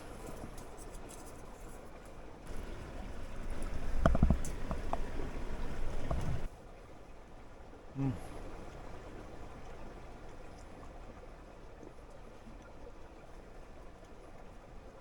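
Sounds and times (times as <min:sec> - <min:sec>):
creek water rushing: 0:02.2 - 0:11.6.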